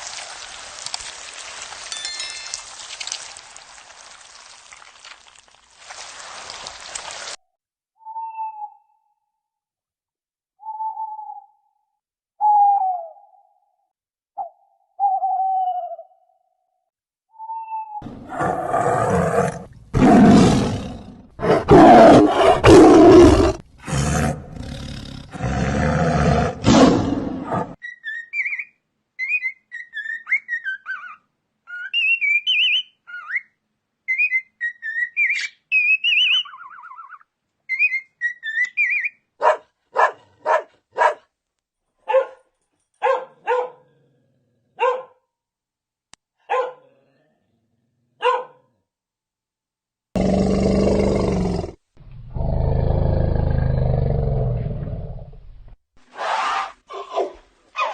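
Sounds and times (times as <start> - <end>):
large animal roaring: 18.0 - 27.8, 50.2 - 55.4
high sliding chirping calls: 34.1 - 39.2
dog barking: 39.4 - 41.3, 42.0 - 44.0, 44.7 - 45.3, 46.4 - 47.1, 48.2 - 48.8.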